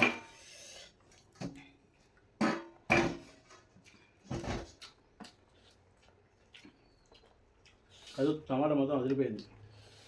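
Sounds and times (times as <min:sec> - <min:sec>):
chewing and mouth noise: 0:03.6 - 0:08.5.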